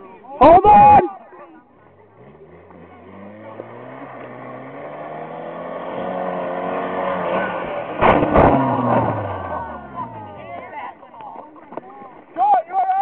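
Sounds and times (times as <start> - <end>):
car engine under throttle: 1.7 - 10.9.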